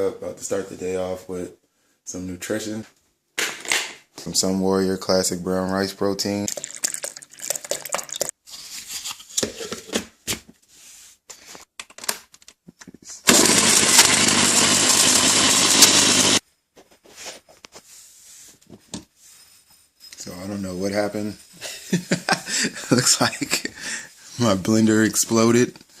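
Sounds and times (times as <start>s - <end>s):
blender running: 13.3s - 16.4s.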